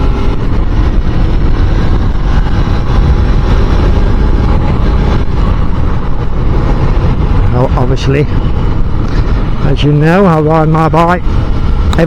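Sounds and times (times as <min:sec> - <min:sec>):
motorcycle engine running: 0:00.0 - 0:12.0
wind rush on microphone: 0:00.0 - 0:12.0.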